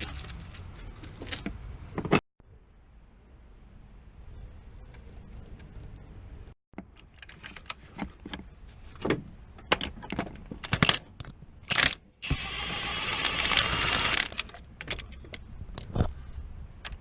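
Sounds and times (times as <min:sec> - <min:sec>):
steady mechanical noise: 0:11.8 - 0:14.9.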